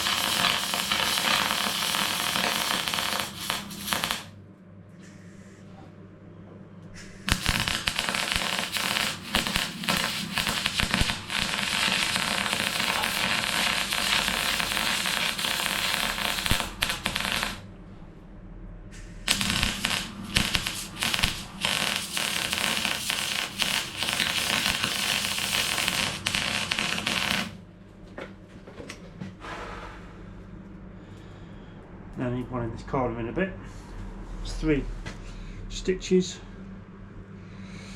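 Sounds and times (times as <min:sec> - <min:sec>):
welding arc crackling: 0:00.0 - 0:04.4, 0:07.0 - 0:17.7, 0:19.0 - 0:27.6.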